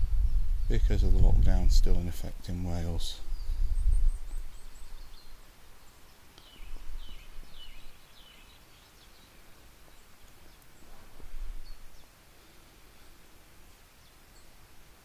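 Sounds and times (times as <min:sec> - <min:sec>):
steady outdoor hiss: 0:00.0 - 0:15.0
small bird chirping: 0:03.2 - 0:12.2.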